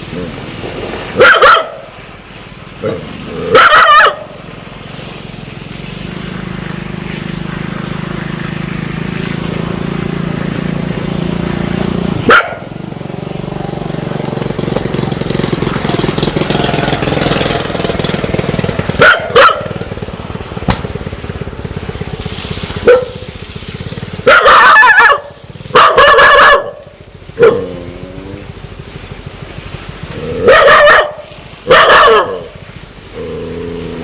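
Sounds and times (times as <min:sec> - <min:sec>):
dog barking: 0:01.2 - 0:01.9, 0:02.8 - 0:04.4, 0:12.3 - 0:12.7, 0:19.0 - 0:19.8, 0:22.8 - 0:23.2, 0:24.2 - 0:26.8, 0:27.4 - 0:27.7, 0:30.4 - 0:32.6.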